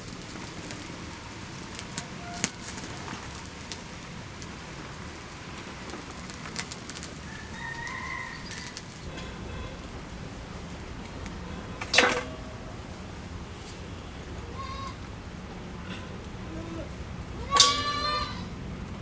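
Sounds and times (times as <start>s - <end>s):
rustling: 0.0s - 10.0s
steady hiss: 0.0s - 11.4s.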